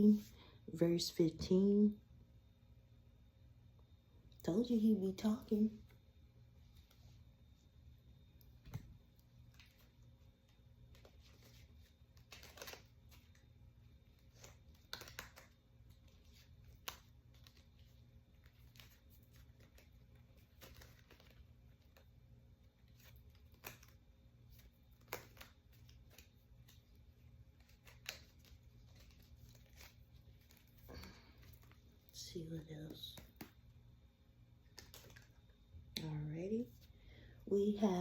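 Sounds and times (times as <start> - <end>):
low room hum: 0.0 - 38.0
paper cards clicking and rustling: 9.4 - 32.1, 34.6 - 35.5
sharp card snaps: 12.2 - 13.2.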